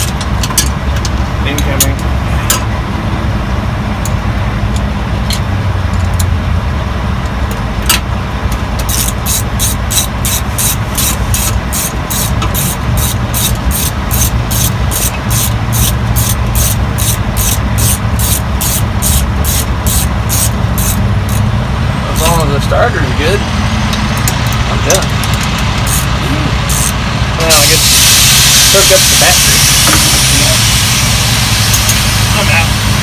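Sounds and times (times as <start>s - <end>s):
low vehicle rumble: 0.0s - 33.0s
ratchet wrench clicking: 7.9s - 21.5s, 22.2s - 22.4s, 24.2s - 27.0s.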